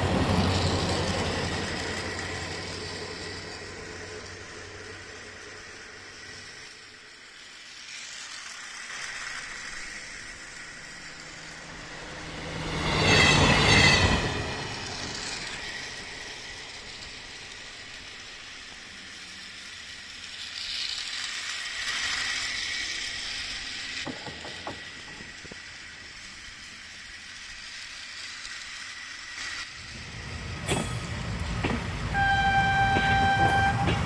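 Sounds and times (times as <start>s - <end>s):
toy train wheel rattle: 1.4s - 11.9s, 15.2s - 29.8s
toy train motor whine: 1.4s - 14.1s, 15.2s - 34.0s.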